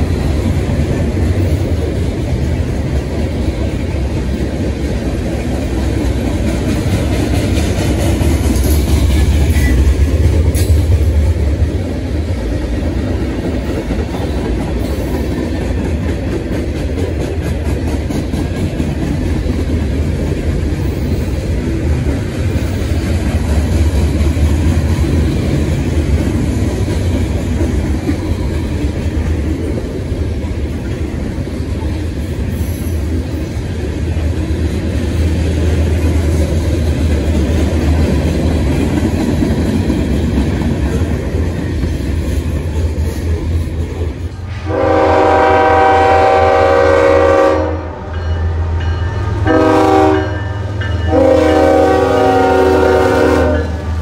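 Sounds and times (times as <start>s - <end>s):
freight cars rumbling and rattling: 0.0s - 44.6s
locomotive air horn chord: 44.5s - 48.2s, 49.4s - 54.0s.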